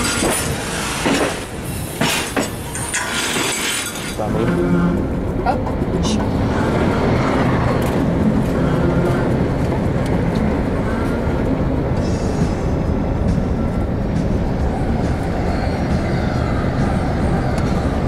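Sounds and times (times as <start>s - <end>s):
passenger train rumbling: 0.0s - 18.0s.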